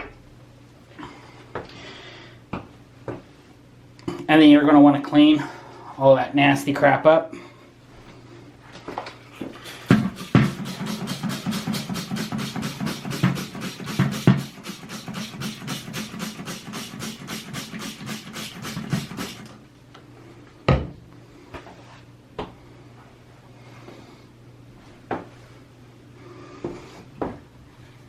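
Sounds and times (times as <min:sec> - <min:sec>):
hand scrubbing strokes: 0:09.4 - 0:19.6.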